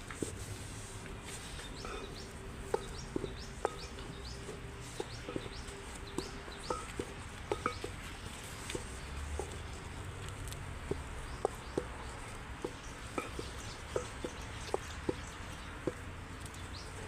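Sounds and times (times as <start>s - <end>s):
bird chirping: 1.5s - 7.9s
light clicks and knocks: 1.6s - 17.0s.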